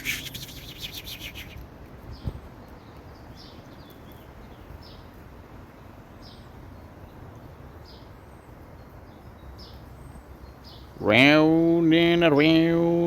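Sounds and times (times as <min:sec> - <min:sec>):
faint high whistled bird notes: 0:00.0 - 0:01.6
birds chirping: 0:00.0 - 0:05.1
low outdoor background noise: 0:00.0 - 0:13.0.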